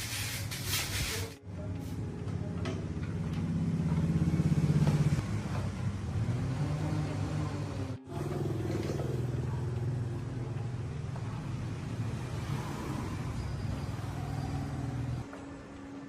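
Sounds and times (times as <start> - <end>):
engine running and revving: 3.0 - 15.3.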